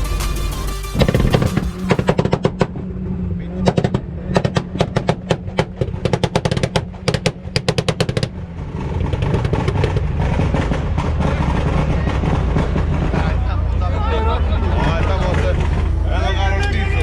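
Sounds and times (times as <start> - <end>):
rapid sharp bangs: 0.0 - 2.8, 3.6 - 13.8
low engine rumble: 0.0 - 17.0.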